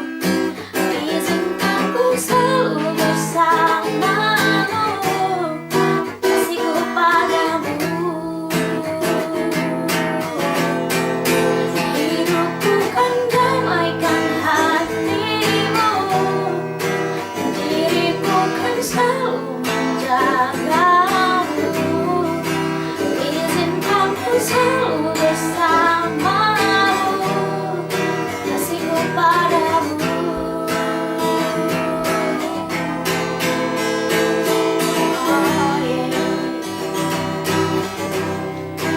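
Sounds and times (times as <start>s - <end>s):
person singing: 0.0s - 38.9s
strummed acoustic guitar: 0.0s - 38.9s.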